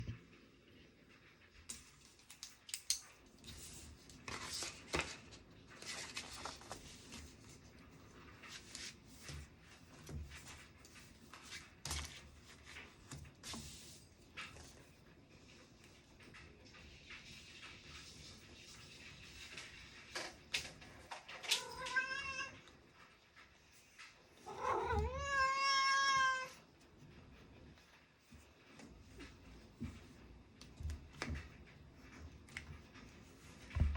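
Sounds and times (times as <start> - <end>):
paper rustling and scraping: 3.3 - 22.0
cat meowing: 21.6 - 22.6, 24.4 - 26.6.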